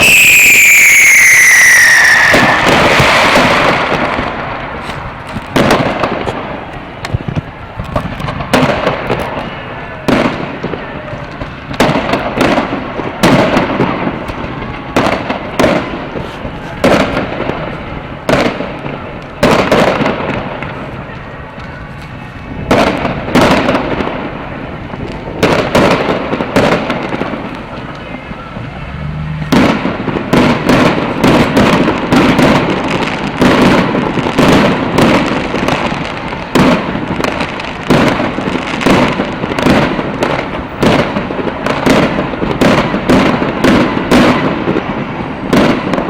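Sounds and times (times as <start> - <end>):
fireworks shells bursting: 0.0 - 9.5
echoing rumble: 26.0 - 32.3.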